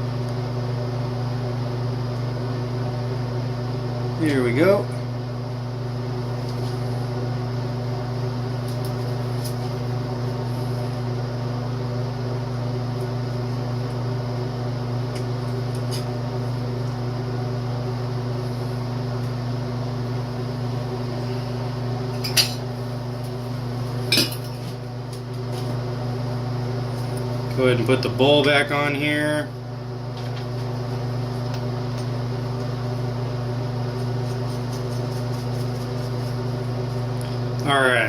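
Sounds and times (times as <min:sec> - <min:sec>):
machine hum: 0:00.0 - 0:38.0.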